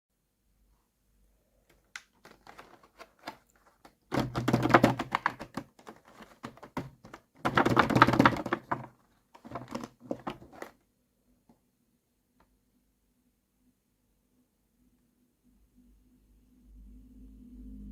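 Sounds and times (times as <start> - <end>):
packaging crackling and clicking: 1.7 - 10.7.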